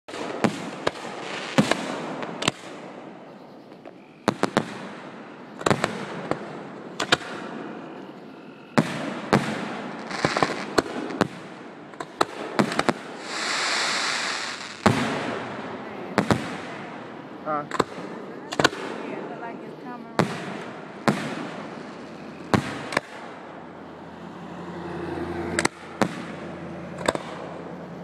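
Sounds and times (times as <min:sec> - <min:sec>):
fireworks bursting with echo: 0:00.1 - 0:08.0, 0:08.8 - 0:27.9
hiss: 0:13.0 - 0:14.9.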